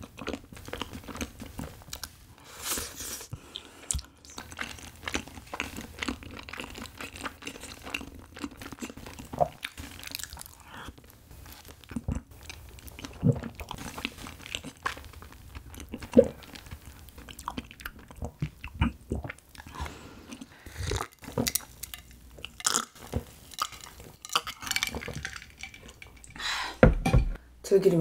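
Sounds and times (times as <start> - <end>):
person gulping drink: 15.8 - 16.6, 17.5 - 26.6.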